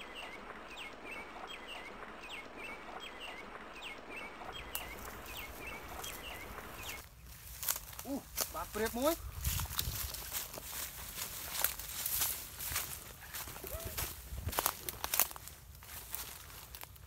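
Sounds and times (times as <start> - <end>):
small bird chirping: 0.0 - 7.0
steady outdoor hiss: 0.0 - 17.0.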